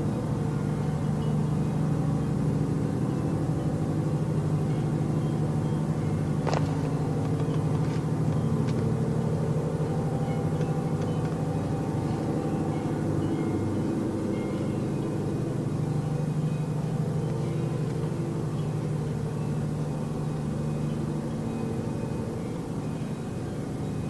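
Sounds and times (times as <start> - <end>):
steady low drone: 0.0 - 24.0.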